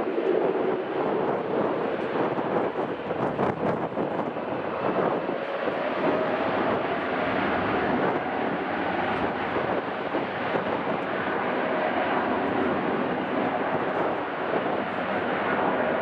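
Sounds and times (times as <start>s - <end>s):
airliner engines rushing: 0.0s - 16.0s
faint engine whine: 0.0s - 16.0s.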